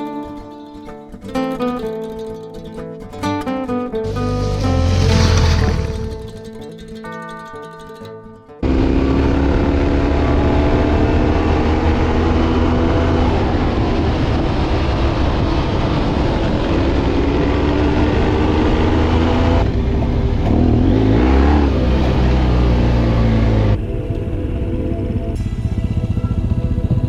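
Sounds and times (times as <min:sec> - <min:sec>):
motorcycle engine running: 0:04.0 - 0:06.5, 0:08.6 - 0:27.0.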